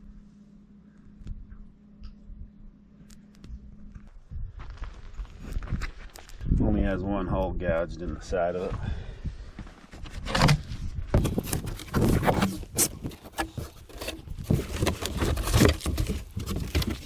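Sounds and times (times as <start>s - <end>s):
packaging scraping and rustling: 10.2s - 17.0s.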